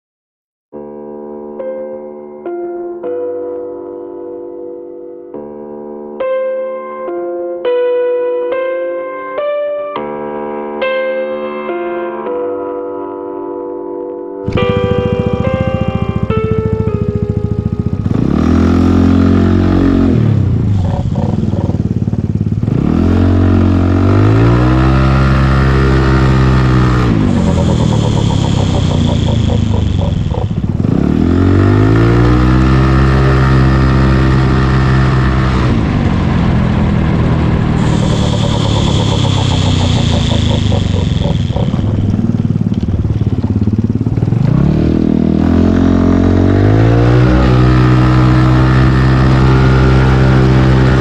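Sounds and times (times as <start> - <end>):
scooter engine revving: 14.5 - 51.0.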